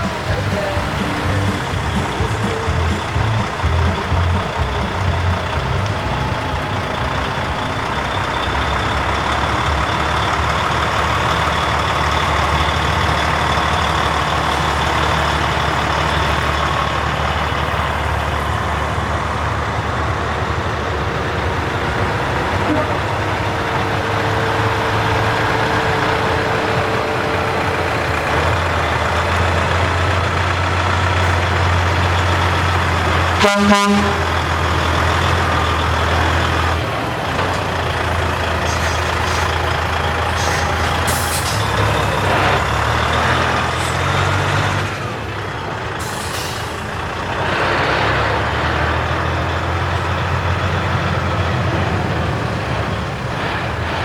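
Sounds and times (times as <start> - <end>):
truck diesel engines passing: 0.0 - 54.0
truck horn blast: 20.6 - 29.2, 33.0 - 35.5
air brakes hissing: 38.6 - 42.0, 46.0 - 47.0.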